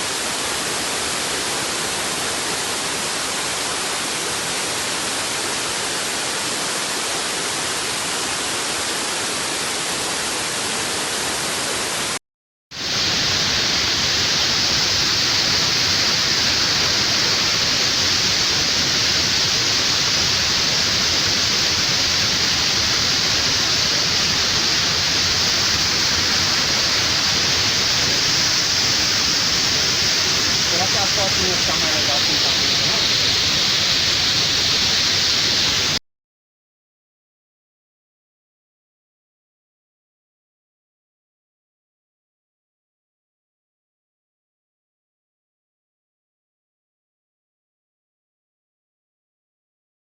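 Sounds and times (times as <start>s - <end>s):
waterfall rushing: 12.8s - 36.0s.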